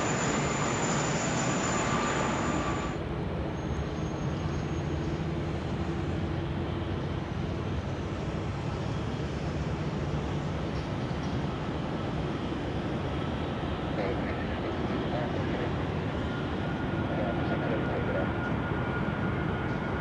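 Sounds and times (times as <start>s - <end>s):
low jet engine rumble: 0.0s - 3.4s, 11.3s - 20.0s
jet engine rush and whine: 0.0s - 20.0s.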